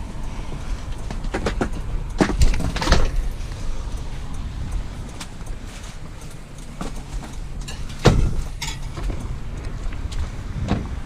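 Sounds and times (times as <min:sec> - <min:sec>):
steady low rumble: 0:00.0 - 0:11.0
knocks and clunks of heavy metal: 0:01.0 - 0:03.4, 0:06.6 - 0:11.0.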